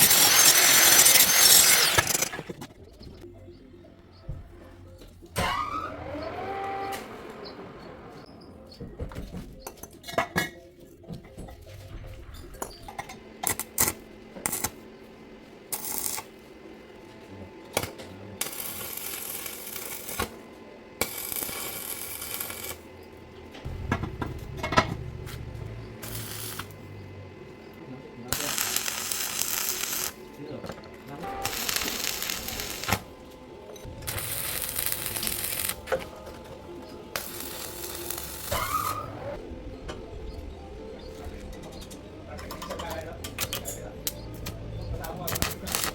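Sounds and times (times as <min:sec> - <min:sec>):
hissing bursts: 0:23.7 - 0:27.0, 0:28.3 - 0:30.2, 0:31.2 - 0:33.1, 0:33.9 - 0:36.0, 0:37.1 - 0:39.2.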